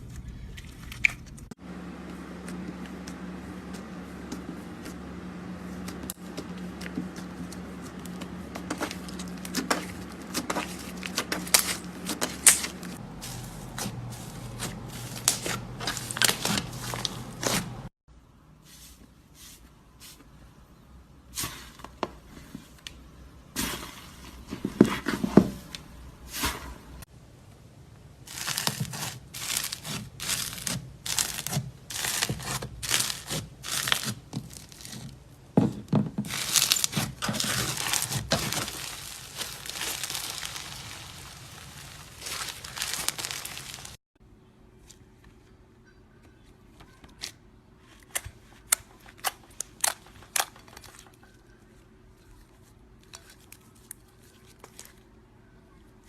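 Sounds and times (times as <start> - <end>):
slime crackling and popping: 28.3 - 35.0, 36.3 - 44.0.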